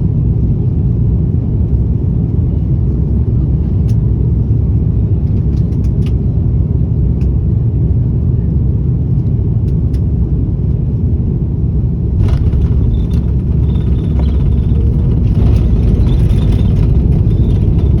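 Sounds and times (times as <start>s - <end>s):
airliner cabin rumble: 0.0s - 18.0s
light clicks and rattles: 12.2s - 18.0s.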